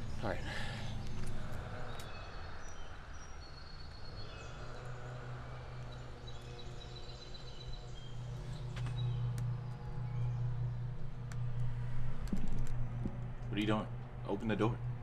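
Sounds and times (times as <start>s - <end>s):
small birds chirping: 0.0s - 14.8s
low hum: 0.0s - 15.0s
faint clicks: 8.6s - 10.3s, 10.9s - 14.1s.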